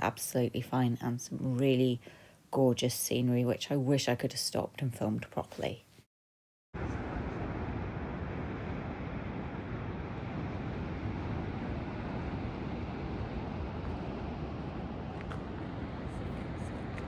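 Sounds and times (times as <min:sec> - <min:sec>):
wind rumbling on microphone: 0:06.8 - 0:17.0.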